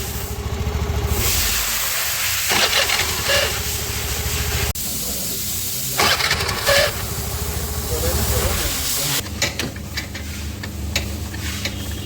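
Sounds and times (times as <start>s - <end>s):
scooter engine humming: 0.0s - 4.7s, 6.0s - 9.2s
harsh hissing bursts: 1.0s - 9.2s.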